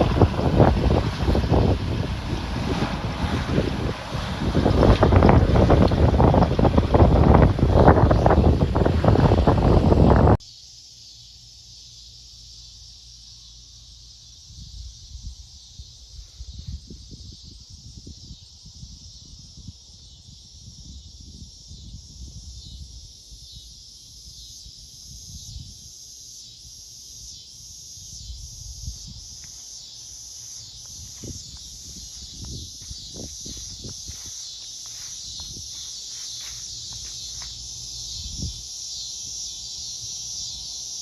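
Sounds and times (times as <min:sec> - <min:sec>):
wind rumble on microphone: 0:00.0 - 0:10.4, 0:14.5 - 0:23.9, 0:24.6 - 0:25.9, 0:28.0 - 0:29.7, 0:30.4 - 0:38.8
insects chorus: 0:00.0 - 0:41.0
pulsing high insect call: 0:00.0 - 0:41.0.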